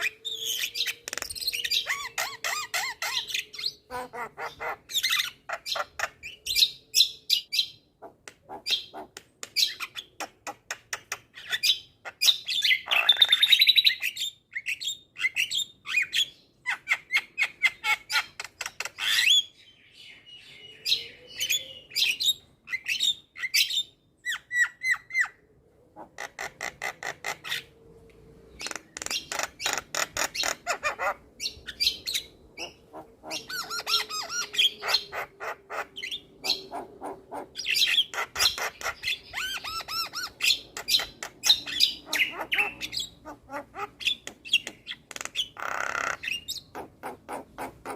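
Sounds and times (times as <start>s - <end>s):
bird singing clicks and chirps: 0.0s - 1.8s, 8.3s - 11.8s, 17.0s - 19.3s, 28.5s - 30.6s, 44.0s - 46.7s.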